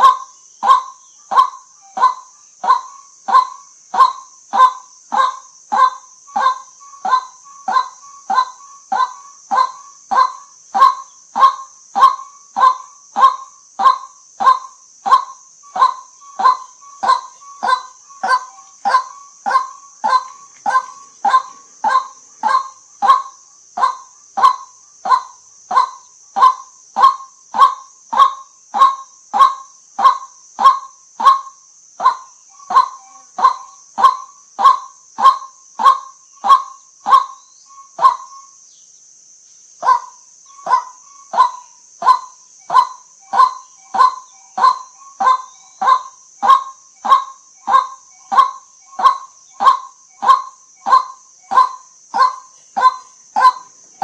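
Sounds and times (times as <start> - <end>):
steady high hiss: 0.0 - 54.0
bird honking call: 14.5 - 27.2, 39.9 - 53.7.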